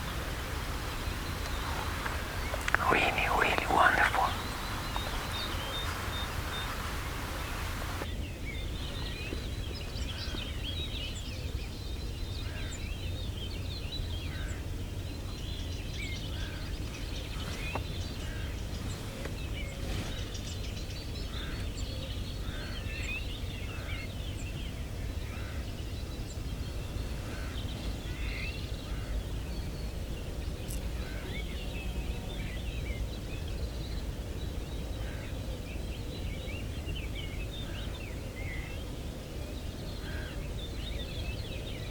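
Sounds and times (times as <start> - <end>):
jackdaws calling: 0.0 - 8.0
steady low rumble: 0.0 - 8.0.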